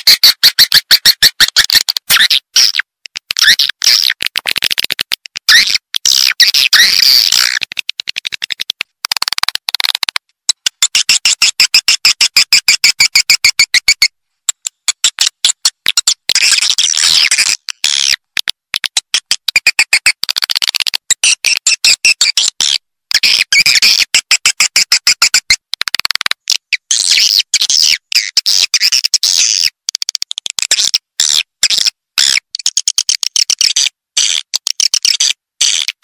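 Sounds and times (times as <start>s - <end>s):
swiftlet chirps and clicks: 0.0s - 18.1s.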